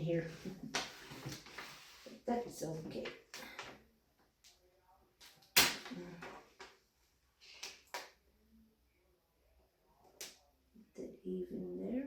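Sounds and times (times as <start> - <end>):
contact paper rustling and crackling: 0.4 - 2.2.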